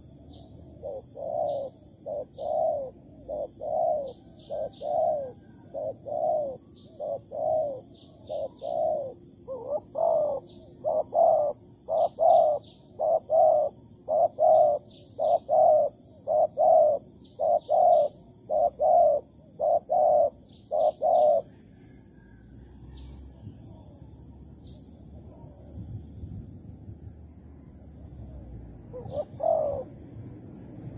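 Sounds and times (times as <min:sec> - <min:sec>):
dove cooing: 0:00.0 - 0:22.3, 0:28.3 - 0:30.4
small birds chirping: 0:00.0 - 0:26.4.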